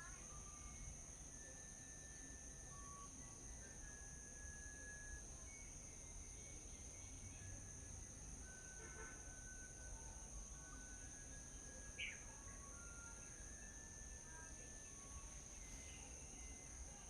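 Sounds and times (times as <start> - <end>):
insect drone: 0.0 - 17.0
whistled bird notes: 11.9 - 12.3.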